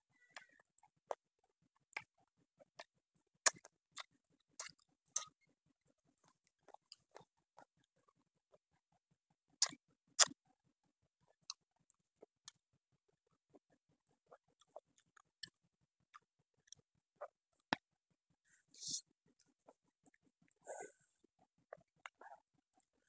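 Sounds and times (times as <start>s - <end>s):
person chewing with wet clicks: 0.2s - 1.2s, 1.8s - 8.8s, 9.5s - 10.4s, 11.2s - 12.6s, 13.2s - 17.9s, 19.3s - 20.6s, 21.3s - 23.0s.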